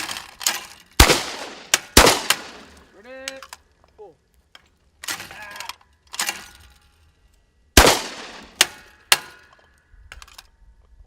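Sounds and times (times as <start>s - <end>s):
gunshots: 1.0s - 2.8s, 7.8s - 9.3s.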